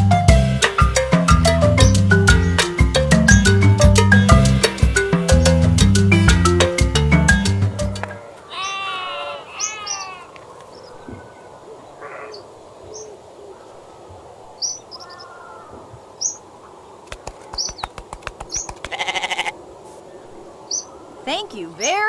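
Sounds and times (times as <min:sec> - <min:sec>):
bird falling calls: 0:01.1 - 0:13.9, 0:14.6 - 0:16.5
quick run of clicks: 0:17.0 - 0:19.0.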